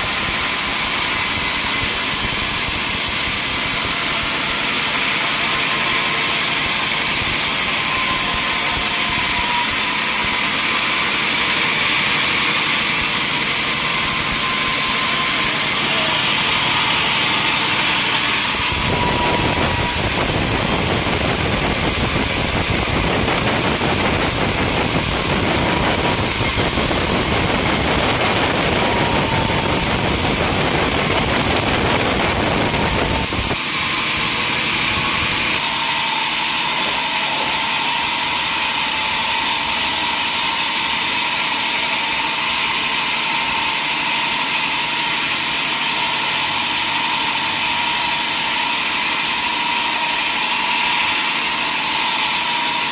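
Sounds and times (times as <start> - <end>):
sawmill machinery hissing: 0.0 - 52.9
deep full machine noise: 11.7 - 35.6.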